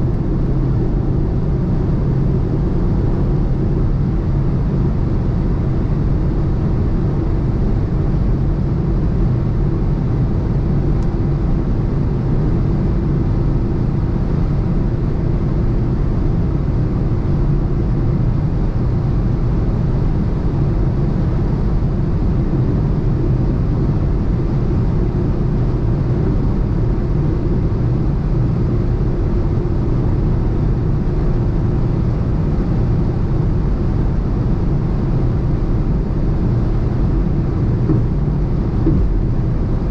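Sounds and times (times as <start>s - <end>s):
car engine running steadily: 0.0s - 39.9s
road and wind noise: 0.0s - 39.9s.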